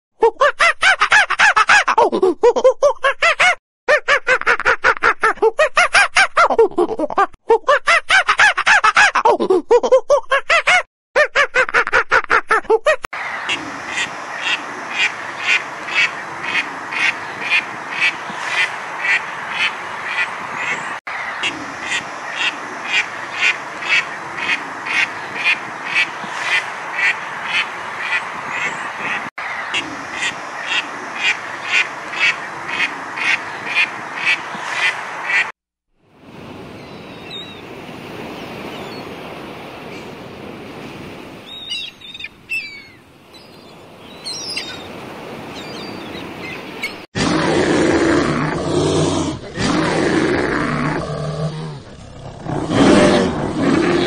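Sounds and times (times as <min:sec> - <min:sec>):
sea surf: 0:13.2 - 0:47.1
duck quacking: 0:13.5 - 0:35.5.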